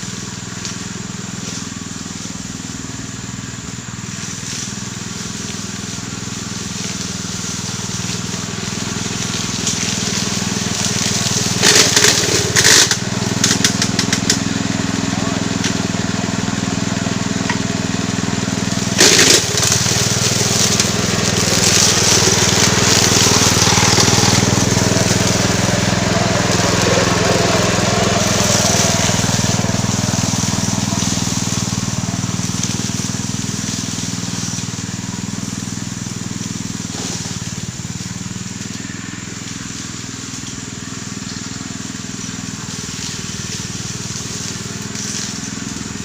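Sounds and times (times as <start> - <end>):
small engine running: 0.0 - 46.0
blade rasping through grass: 4.0 - 16.4, 17.1 - 41.0, 41.8 - 46.0
sharp crack: 6.8 - 14.6, 18.7 - 34.7.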